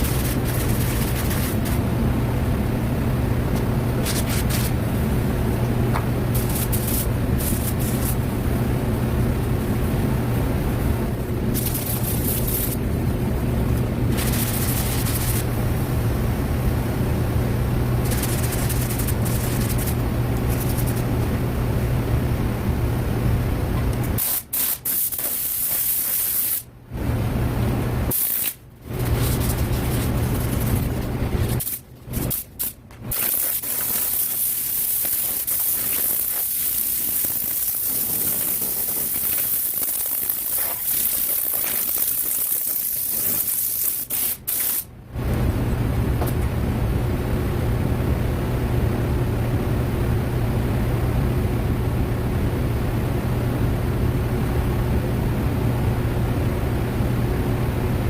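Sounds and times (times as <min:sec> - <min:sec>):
hissing air spray: 0:00.0 - 0:01.8, 0:04.0 - 0:04.8, 0:06.3 - 0:08.2, 0:11.5 - 0:12.8, 0:14.1 - 0:15.5, 0:18.0 - 0:21.1, 0:24.2 - 0:26.7, 0:28.1 - 0:44.9
sandpaper rubbing back and forth: 0:00.0 - 0:01.8, 0:04.0 - 0:04.8, 0:06.3 - 0:08.2, 0:11.5 - 0:12.8, 0:14.1 - 0:15.5, 0:18.0 - 0:21.1, 0:24.2 - 0:26.6, 0:28.1 - 0:44.9
low machine hum: 0:00.0 - 0:24.2, 0:26.7 - 0:42.3, 0:44.9 - 0:58.0.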